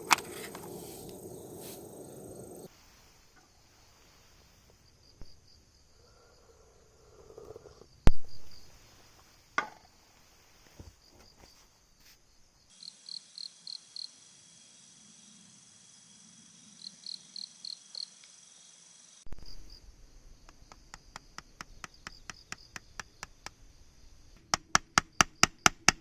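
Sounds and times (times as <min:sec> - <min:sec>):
rustling: 0:00.0 - 0:02.7
crickets chirping: 0:00.0 - 0:26.0.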